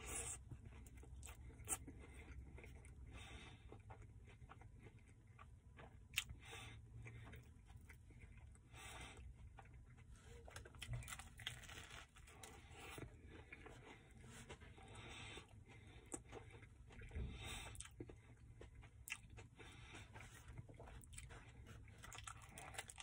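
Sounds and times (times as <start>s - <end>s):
person chewing sandwich: 0.0s - 23.0s
soft crunches: 10.1s - 15.1s.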